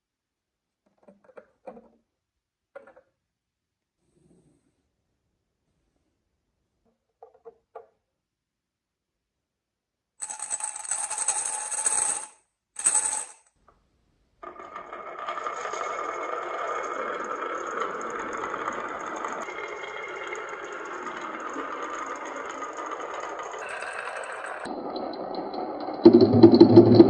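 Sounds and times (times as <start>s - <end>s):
marbles clattering on marble run: 10.2s - 13.4s, 14.4s - 24.7s.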